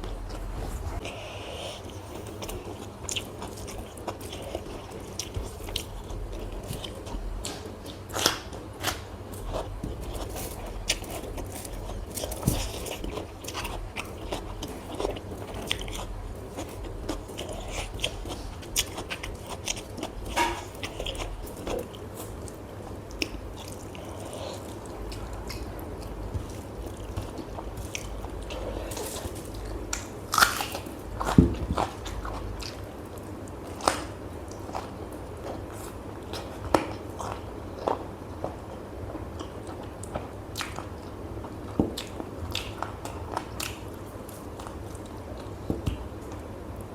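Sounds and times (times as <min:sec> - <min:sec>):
chewing and biting food: 0:01.8 - 0:46.4
crunchy clicks and crunches: 0:02.3 - 0:38.0.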